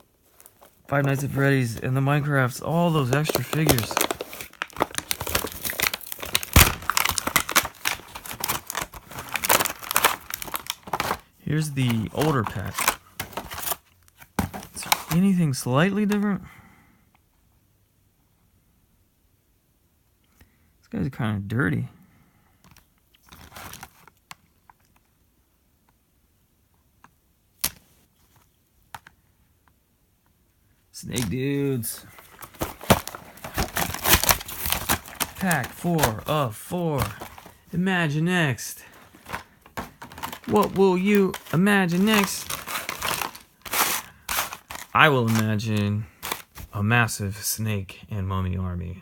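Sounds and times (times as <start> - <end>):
plastic toy rustle: 0.0 - 15.3, 22.6 - 25.1, 31.0 - 46.8
plastic packaging crinkling: 0.2 - 13.8, 23.2 - 25.1, 31.1 - 46.8.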